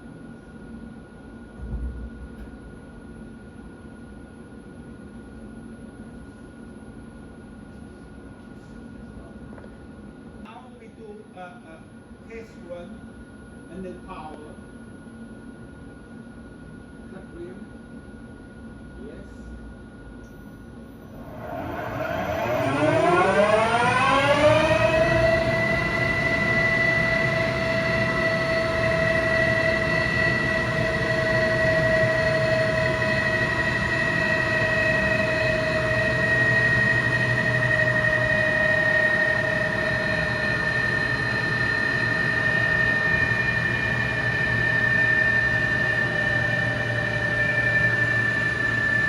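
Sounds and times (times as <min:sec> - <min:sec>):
lathe spindle whine: 0:21.0 - 0:49.0.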